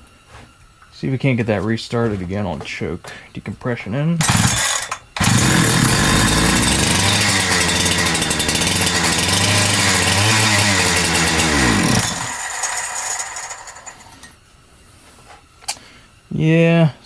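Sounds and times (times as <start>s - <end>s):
chainsaw engine running: 4.2s - 14.3s.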